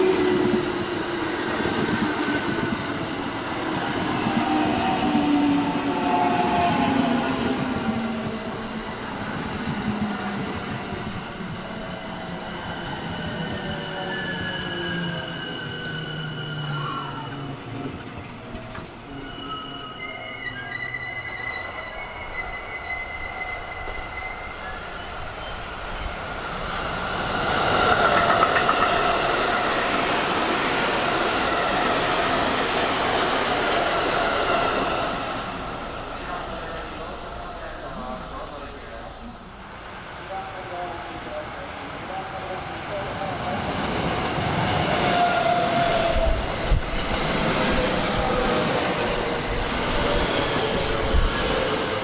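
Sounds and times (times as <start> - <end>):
electric train passing: 0.0 - 52.0
high-pitched wheel squeal: 19.1 - 25.5.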